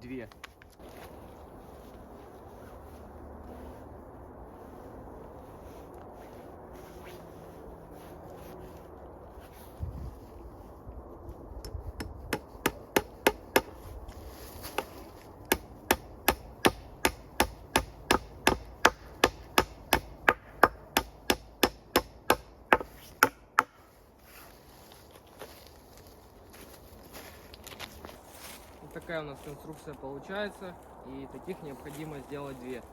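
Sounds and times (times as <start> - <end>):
hammer striking nail into wood: 12.0 - 13.8, 15.5 - 23.8.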